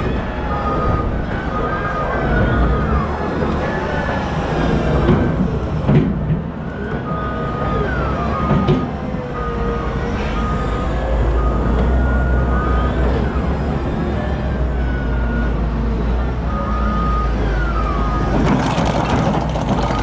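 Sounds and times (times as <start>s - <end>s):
diesel machinery running: 0.0s - 20.0s.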